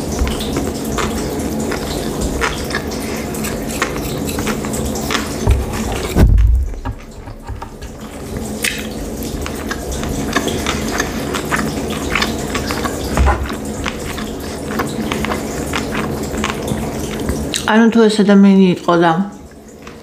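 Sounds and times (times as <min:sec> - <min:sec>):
wet chewing mouth clicks: 0:00.0 - 0:06.2, 0:06.9 - 0:17.7
low thumps: 0:05.4 - 0:08.0.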